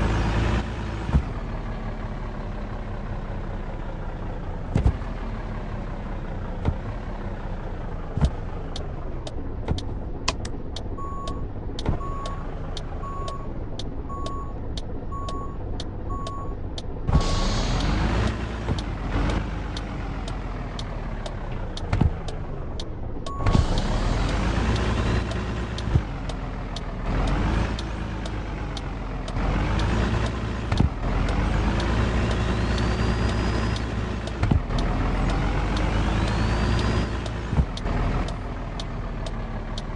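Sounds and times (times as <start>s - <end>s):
truck engine accelerating: 0.0s - 39.9s
short electronic beeps: 11.0s - 16.6s, 23.3s - 23.8s.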